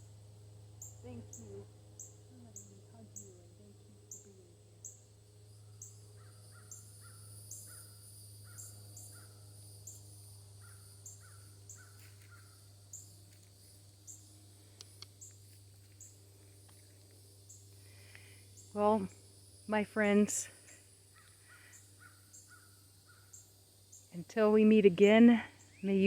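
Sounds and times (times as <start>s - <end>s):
low steady hum: 0.0s - 26.0s
birds calling: 5.6s - 9.5s, 10.6s - 13.1s, 21.1s - 24.0s.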